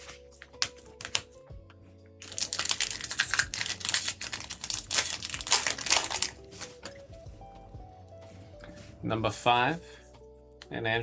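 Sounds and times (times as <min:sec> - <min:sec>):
foil wrapper crinkling: 0:00.0 - 0:01.3, 0:02.2 - 0:07.0.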